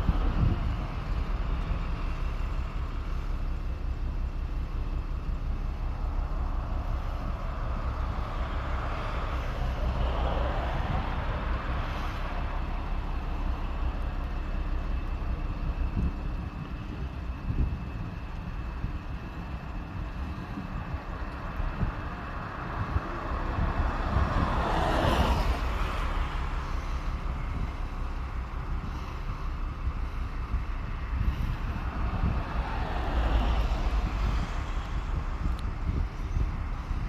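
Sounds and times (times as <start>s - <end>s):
low outdoor rumble: 0.0s - 37.0s
wind buffeting microphone: 0.0s - 37.0s
vehicle passing by: 22.4s - 29.8s, 30.4s - 37.0s.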